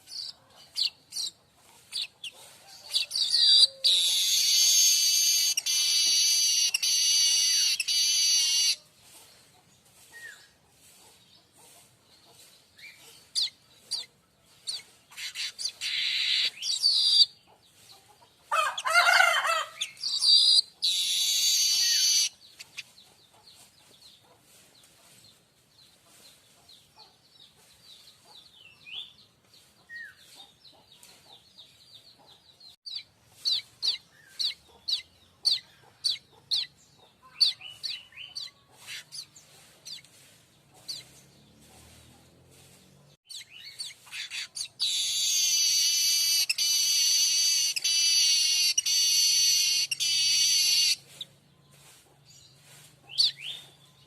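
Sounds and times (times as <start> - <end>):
bird chirping: 0.0 - 19.0, 19.7 - 25.2, 25.8 - 54.0
harsh buzzy bird phrases: 44.2 - 51.0.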